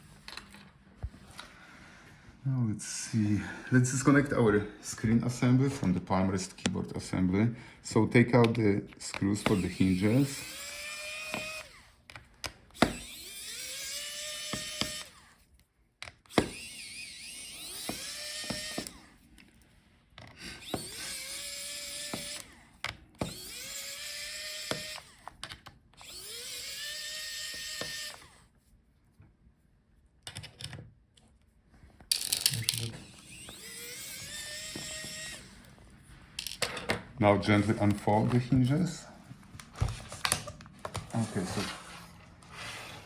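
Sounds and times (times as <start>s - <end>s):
screwdriver clicks: 8.4s - 15.2s, 32.1s - 35.5s
electric screwdriver whirring: 8.4s - 19.2s, 20.2s - 28.5s, 32.1s - 36.6s.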